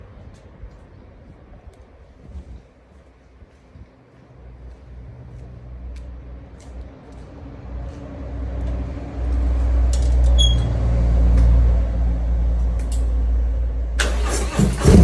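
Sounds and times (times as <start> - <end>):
motorcycle engine rumbling: 14.0 - 15.0.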